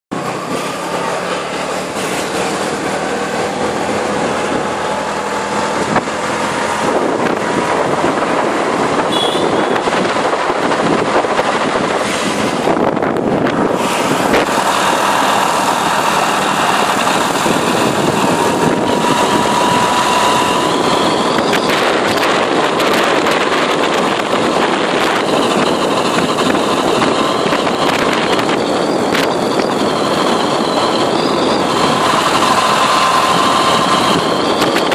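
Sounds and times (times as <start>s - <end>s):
wind and road rush: 0.1s - 34.9s
gearbox whistle rising in pitch: 9.0s - 10.0s, 13.6s - 34.9s.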